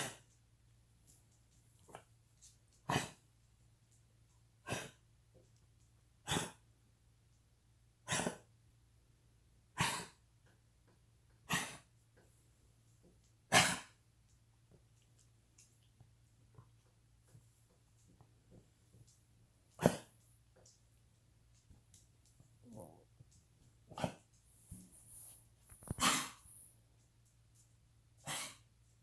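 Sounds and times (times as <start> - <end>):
dog coughing: 2.9 - 3.2, 4.6 - 5.0, 6.2 - 6.6, 8.1 - 8.5, 9.8 - 10.2, 11.5 - 11.8, 13.5 - 14.0, 19.8 - 20.1, 23.9 - 24.2, 25.8 - 26.5, 28.2 - 28.7.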